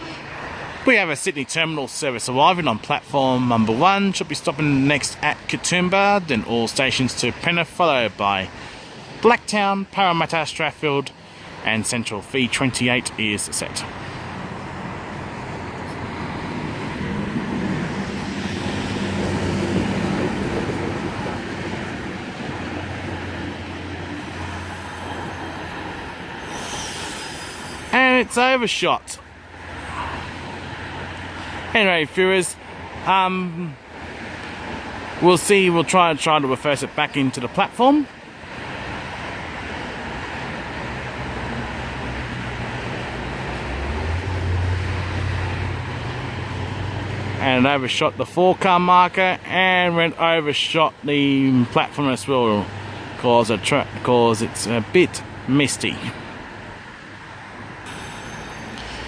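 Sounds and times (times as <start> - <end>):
low drone: 16.2 - 30.7, 57.4 - 59.0
train wheels rumbling: 16.4 - 29.2, 57.8 - 59.0.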